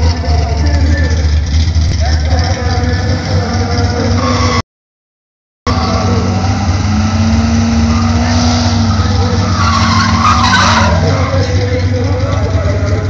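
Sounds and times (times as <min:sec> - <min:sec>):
race car engines roaring: 0:00.0 - 0:04.6, 0:05.7 - 0:13.0
tyre squeal: 0:04.0 - 0:04.6, 0:07.6 - 0:11.6.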